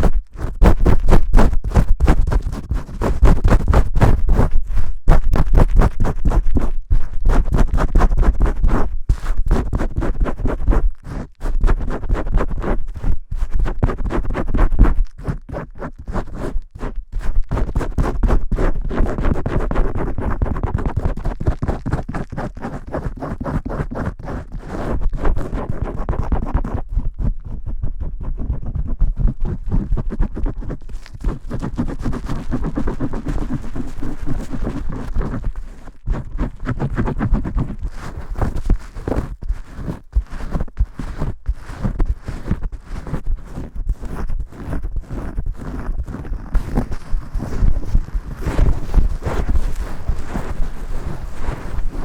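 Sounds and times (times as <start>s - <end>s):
fingers scrubbing lathered hair: 29.1s - 41.3s, 45.6s - 52.0s.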